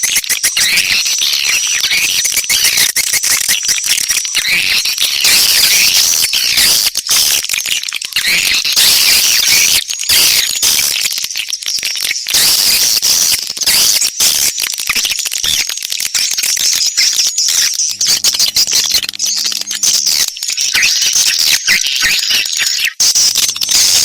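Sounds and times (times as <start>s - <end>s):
swiftlets twittering and chirping: 14.9s - 22.2s, 22.9s - 24.0s
rapid sharp clicks: 17.8s - 20.5s.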